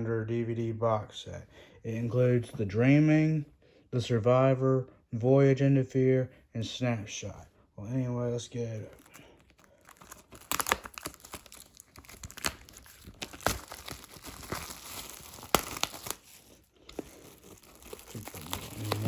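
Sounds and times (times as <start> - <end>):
plastic shrink-wrap crinkling: 8.8 - 19.0.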